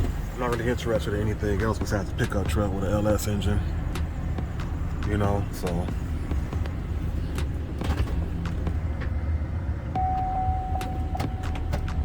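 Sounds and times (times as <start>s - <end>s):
gear shift clicks: 9.9s - 12.0s
steady high tone: 10.0s - 12.0s.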